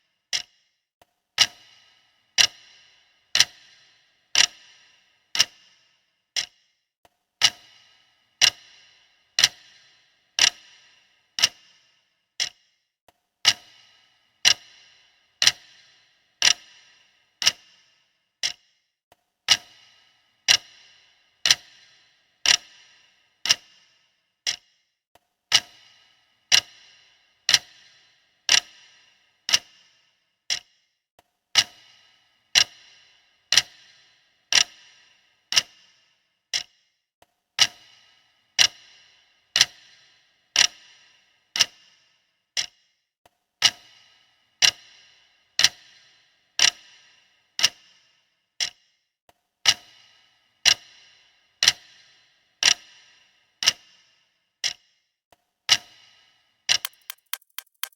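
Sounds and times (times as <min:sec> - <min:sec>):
clock ticking: 0:00.3 - 0:00.6, 0:01.4 - 0:04.8, 0:05.4 - 0:05.6, 0:06.4 - 0:06.6, 0:07.4 - 0:10.8, 0:11.4 - 0:11.8, 0:12.4 - 0:12.7, 0:13.4 - 0:14.8, 0:15.4 - 0:16.7, 0:18.4 - 0:18.6, 0:56.7 - 0:57.9.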